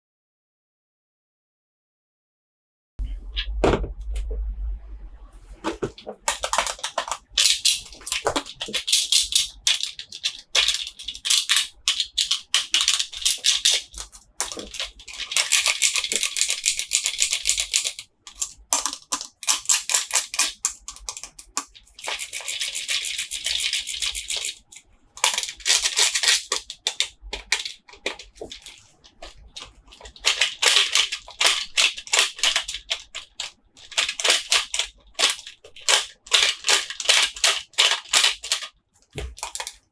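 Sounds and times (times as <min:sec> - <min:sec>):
plastic wrap crinkling: 0:05.6 - 0:17.5, 0:18.6 - 0:39.9.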